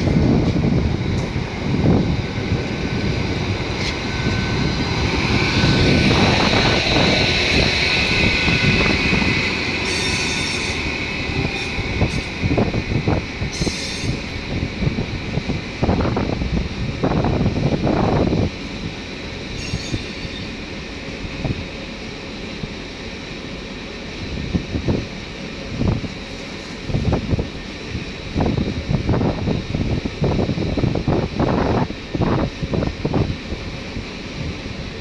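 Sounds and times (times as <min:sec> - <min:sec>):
train wheels squealing: 0:08.1 - 0:12.4, 0:13.5 - 0:14.3, 0:19.5 - 0:20.6.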